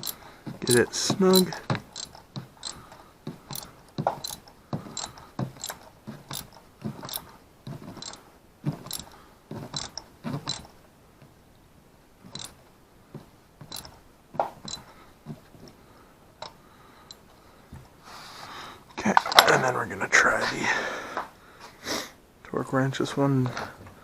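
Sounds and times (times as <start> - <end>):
ratchet wrench clicking: 0.0 - 7.3, 8.0 - 8.2, 8.8 - 10.7, 12.3 - 12.6, 13.6 - 14.0, 14.6 - 14.9.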